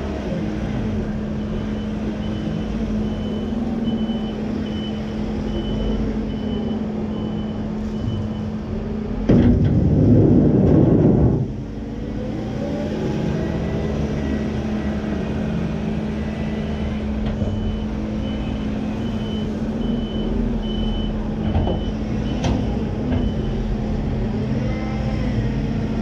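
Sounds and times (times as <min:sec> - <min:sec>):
diesel farm machine running: 0:00.0 - 0:26.0
reversing alarm beeping: 0:01.3 - 0:08.6, 0:13.1 - 0:15.4, 0:17.5 - 0:23.6.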